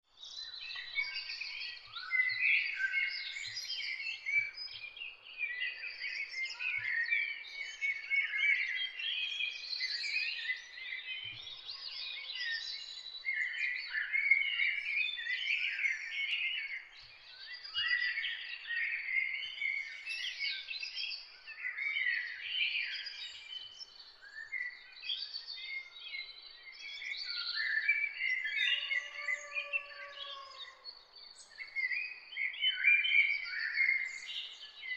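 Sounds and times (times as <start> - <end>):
songbirds singing and chirping: 0.0 - 34.9
low slow bird call: 27.0 - 32.1.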